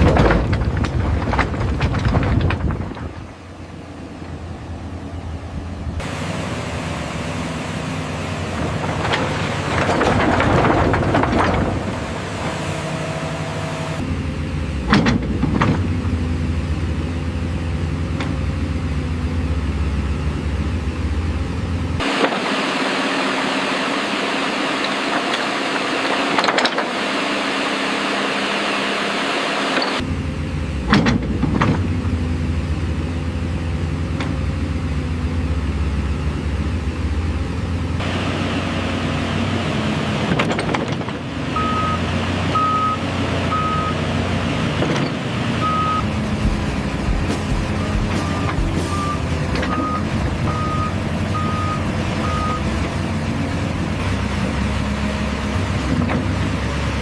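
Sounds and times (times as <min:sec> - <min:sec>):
excavator diesel engine running: 0:00.0 - 0:57.0
sharp metallic knocks: 0:46.2 - 0:49.2.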